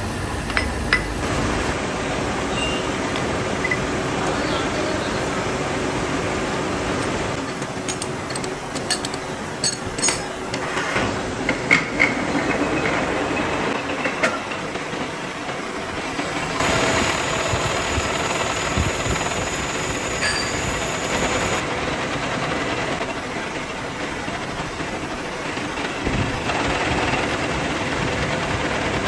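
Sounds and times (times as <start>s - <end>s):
workshop machinery noise: 0.0s - 29.0s
sharp metal clanks: 7.4s - 10.6s.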